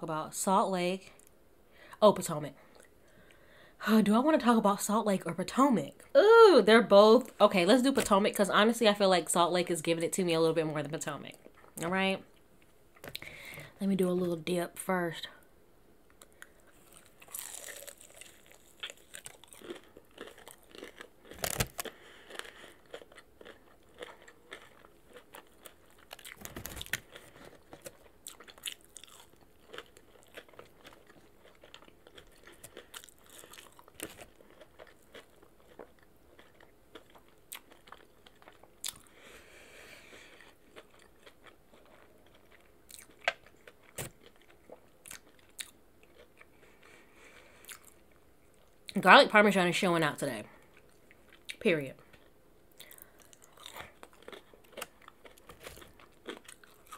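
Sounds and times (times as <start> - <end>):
person chewing and crunching: 16.2 - 49.0, 50.6 - 56.9.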